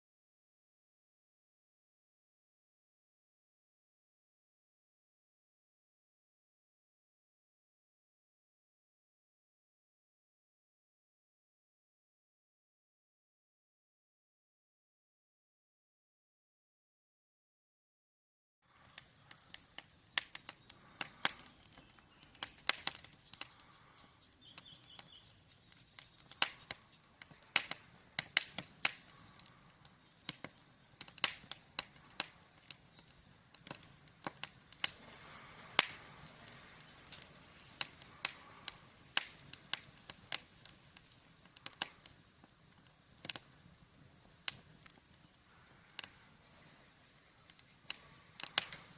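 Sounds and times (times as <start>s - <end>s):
wood fire crackling and popping: 18.7s - 48.9s.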